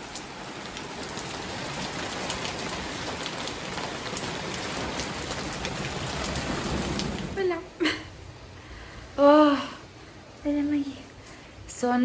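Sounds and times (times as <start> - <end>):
raindrops tapping on tiles: 0.0 - 7.8
rain hiss: 0.0 - 11.8.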